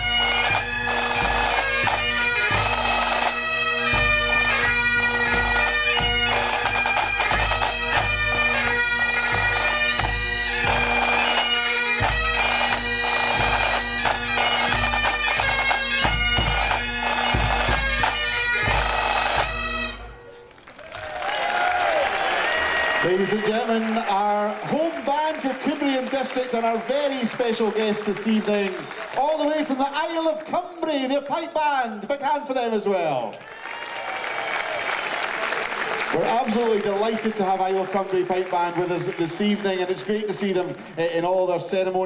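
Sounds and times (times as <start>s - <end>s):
drums beating: 0.0s - 20.0s, 34.7s - 41.4s
bagpipes playing a tune: 0.0s - 20.5s, 23.0s - 30.2s.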